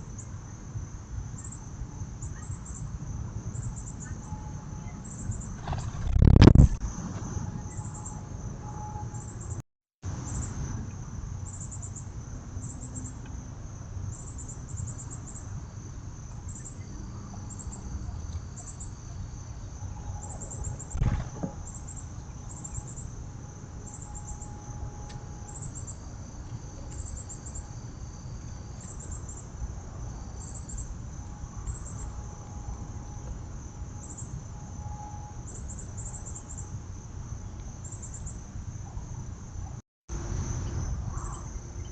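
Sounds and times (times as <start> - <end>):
insects chirping: 0.0 - 41.9
sharp knock: 21.0 - 21.7.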